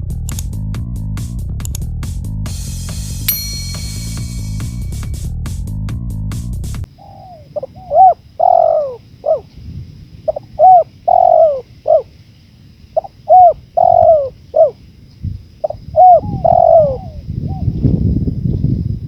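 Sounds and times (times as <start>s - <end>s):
low wind rumble: 3.3s - 19.0s
dove cooing: 6.9s - 9.6s, 10.2s - 12.2s, 13.0s - 14.8s, 15.6s - 18.1s.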